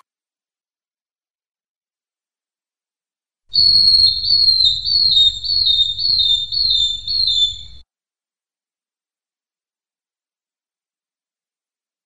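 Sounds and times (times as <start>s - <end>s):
bird whistling notes: 3.5s - 7.8s.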